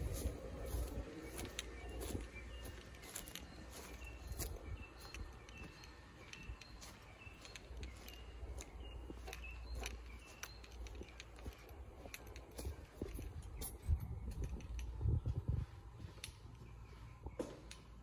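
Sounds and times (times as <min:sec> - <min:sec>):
low rumble on microphone: 0:00.0 - 0:03.2, 0:11.0 - 0:17.7
bird chirping: 0:00.0 - 0:18.0
footsteps: 0:00.0 - 0:18.0.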